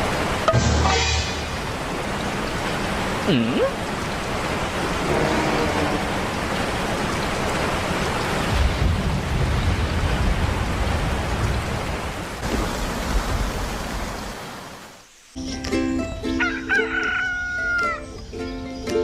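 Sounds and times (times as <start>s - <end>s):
music: 0.5s - 1.4s, 15.4s - 19.0s
rooster crowing: 16.4s - 18.1s.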